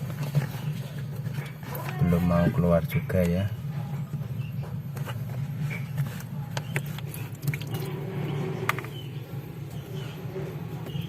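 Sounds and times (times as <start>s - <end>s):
faint squishing of water: 0.0s - 8.8s
steady low hum: 0.0s - 11.0s.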